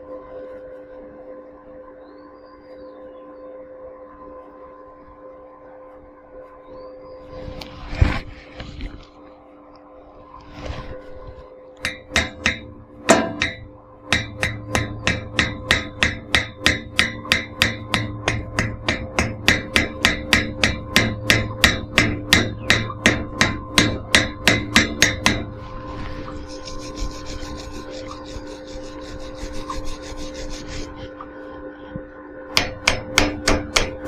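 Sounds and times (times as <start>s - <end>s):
low hum: 0.0s - 34.0s
hammer striking metal: 11.8s - 25.6s, 32.5s - 34.0s.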